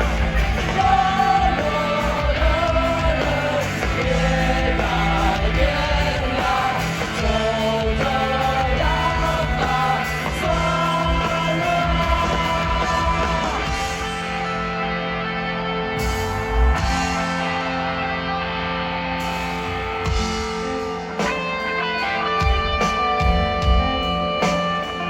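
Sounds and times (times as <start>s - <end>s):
live rock band with singing: 0.0s - 25.0s.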